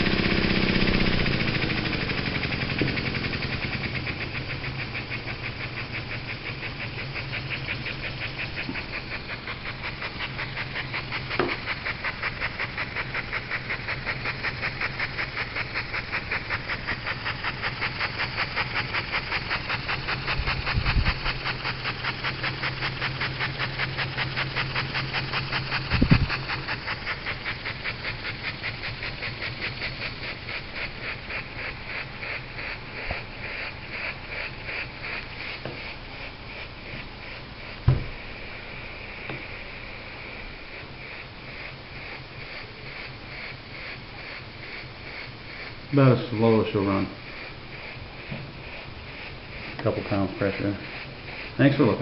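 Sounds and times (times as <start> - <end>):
steady low hum: 0.0 - 52.0
steam engine chuffing: 0.0 - 52.0
dull thumps: 37.8 - 38.4.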